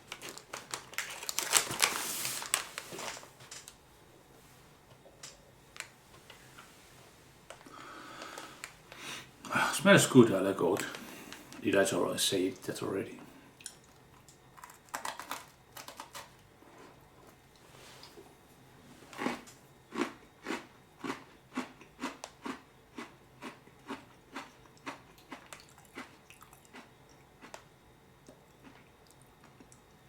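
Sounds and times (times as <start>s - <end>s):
person crunching a cookie: 13.6s - 17.4s, 19.1s - 29.8s.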